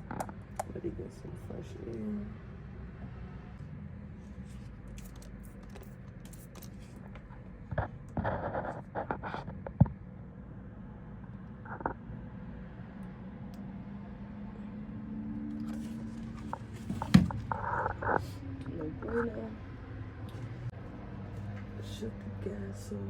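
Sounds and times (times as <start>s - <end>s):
scraping and rustling handling: 15.6s - 18.2s.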